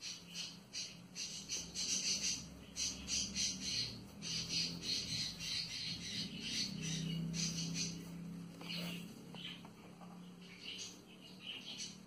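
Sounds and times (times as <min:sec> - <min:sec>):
bird chirping rapidly: 0:00.0 - 0:12.0.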